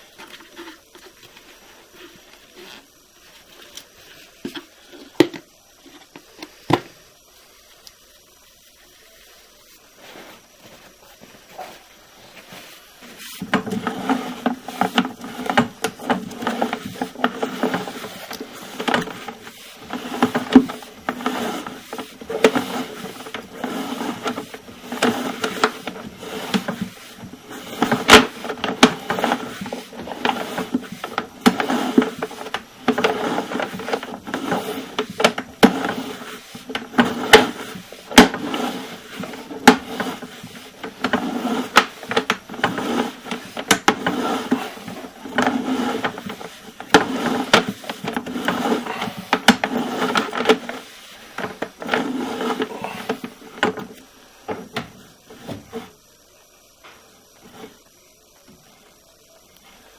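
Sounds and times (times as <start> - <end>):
steady machine hum: 0.0 - 59.9
cable rattling and knocking: 13.4 - 53.9.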